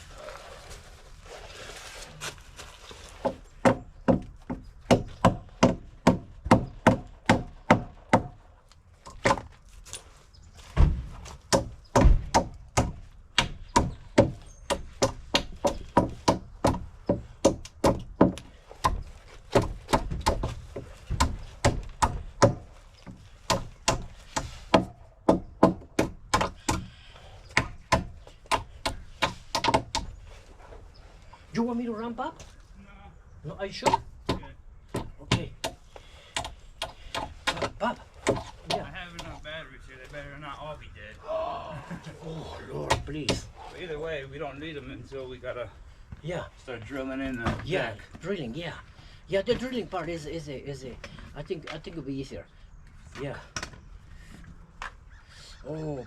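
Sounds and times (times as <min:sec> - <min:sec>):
hammer striking wooden boards: 0:03.2 - 0:08.4, 0:10.9 - 0:26.9, 0:27.6 - 0:30.1.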